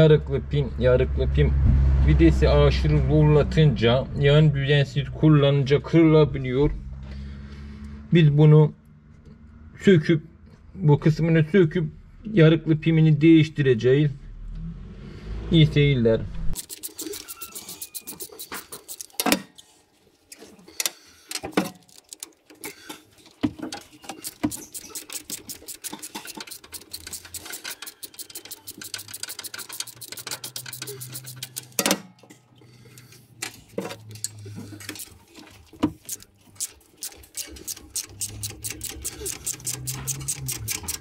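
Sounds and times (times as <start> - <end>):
metal hand tools clicking: 16.6 - 19.4, 23.8 - 32.0, 35.9 - 41.0.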